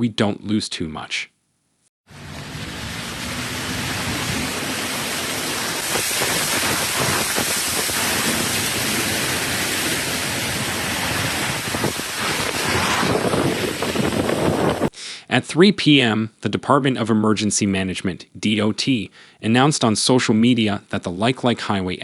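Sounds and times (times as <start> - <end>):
heavy rain pouring: 2.1 - 14.9.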